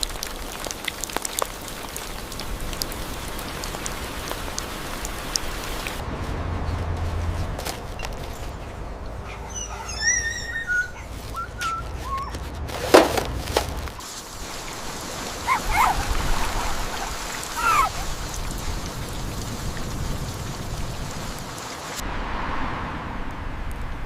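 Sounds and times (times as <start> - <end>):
dog whining: 9.3 - 12.4, 15.5 - 16.1, 17.6 - 18.0.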